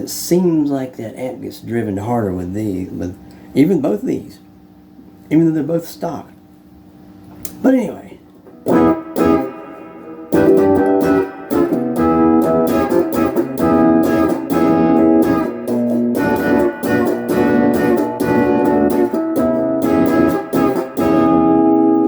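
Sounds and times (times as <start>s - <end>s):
overdriven electric guitar: 8.5s - 22.0s.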